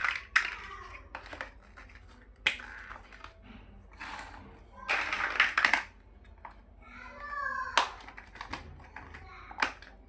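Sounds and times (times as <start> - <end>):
plastic bricks clicking together: 0.0 - 3.3, 4.9 - 6.5, 7.8 - 10.0.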